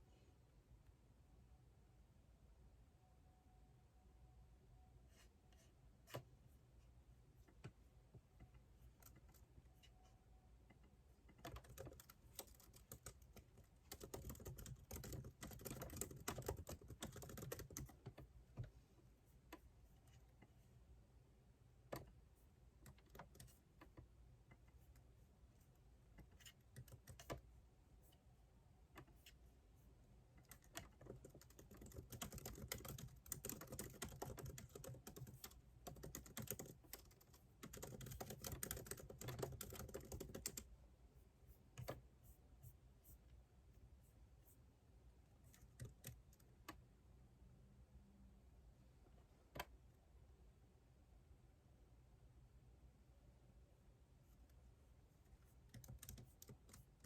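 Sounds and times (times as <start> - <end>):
typing on computer keyboard: 8.4 - 9.4, 10.7 - 18.7, 22.8 - 24.8, 26.2 - 27.5, 30.4 - 40.7, 45.5 - 46.8, 55.6 - 57.0.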